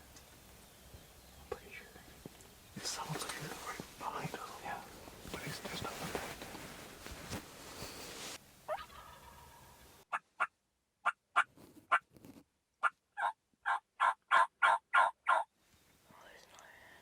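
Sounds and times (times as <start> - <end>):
turkey yelping: 8.7 - 11.5, 12.8 - 15.5.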